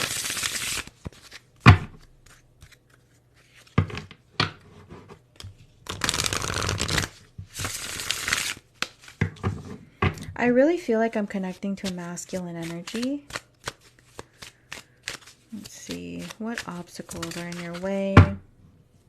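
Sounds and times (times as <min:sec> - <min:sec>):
cards being shuffled: 0:00.0 - 0:04.0, 0:05.2 - 0:09.3, 0:11.4 - 0:18.3.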